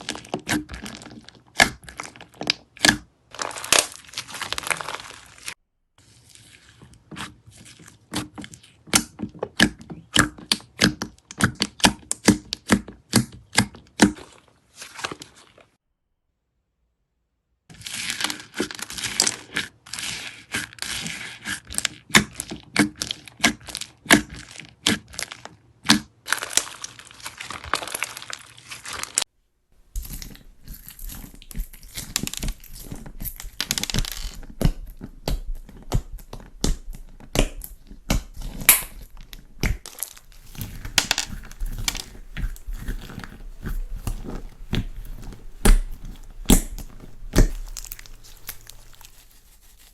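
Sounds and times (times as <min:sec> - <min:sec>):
slime crackling and popping: 0:00.0 - 0:05.6, 0:21.7 - 0:29.2, 0:30.0 - 0:49.9.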